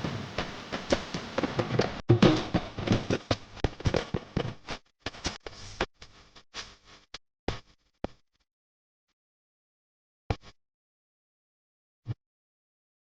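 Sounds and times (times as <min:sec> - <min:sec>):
crackling and popping: 0:00.0 - 0:05.4.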